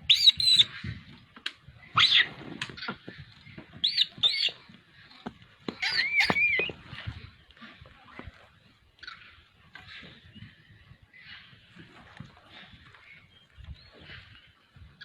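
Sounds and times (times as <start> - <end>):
monkeys shrieking: 3.9 - 4.5, 5.8 - 6.7.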